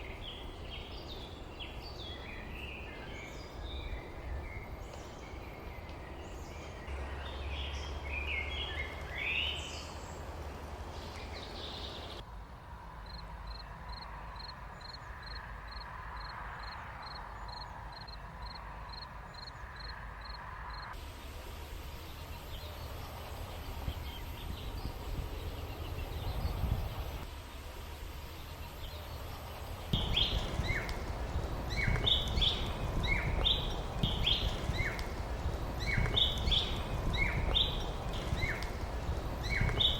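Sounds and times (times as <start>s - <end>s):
small birds chirping: 0.0s - 12.2s, 13.1s - 39.9s
steady low rumble: 21.0s - 39.9s.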